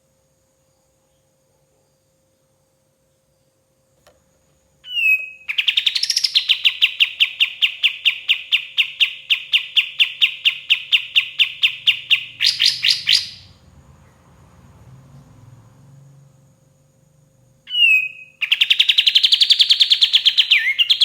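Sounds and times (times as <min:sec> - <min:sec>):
bird trilling song: 0:04.8 - 0:13.6, 0:17.7 - 0:21.0.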